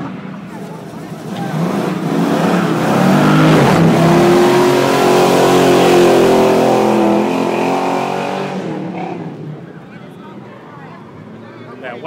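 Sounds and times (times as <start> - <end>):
car engine revving: 0.5 - 9.8.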